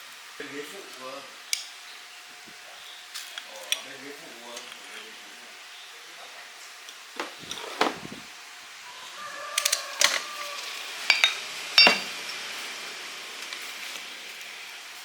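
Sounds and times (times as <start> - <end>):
metal clinks and knocks: 11.1 - 12.1.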